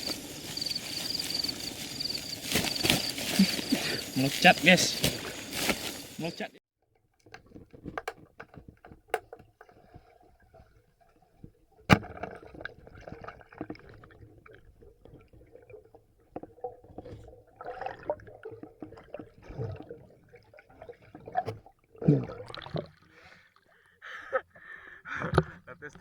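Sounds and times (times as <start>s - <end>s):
river water sloshing and gurgling: 0.0s - 4.4s, 9.7s - 23.7s.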